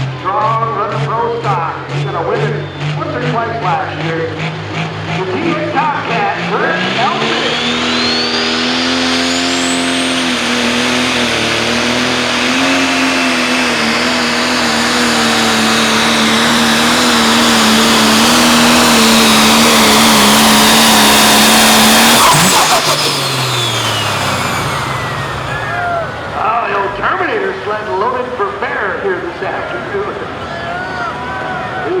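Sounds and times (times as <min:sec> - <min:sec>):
diesel engine running flat out: 0:00.0 - 0:32.0
high turbo whine: 0:00.0 - 0:32.0.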